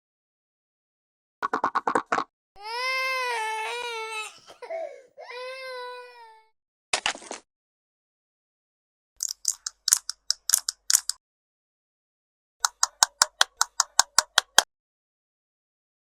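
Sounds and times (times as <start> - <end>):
rapid crisp clicking: 9.2 - 11.2, 12.6 - 14.7.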